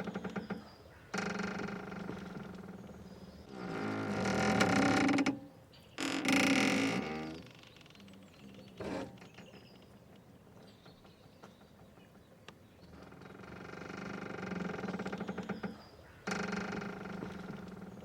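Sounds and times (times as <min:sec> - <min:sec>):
mooring ropes creaking: 0:00.0 - 0:05.4, 0:06.0 - 0:09.6, 0:13.0 - 0:18.0.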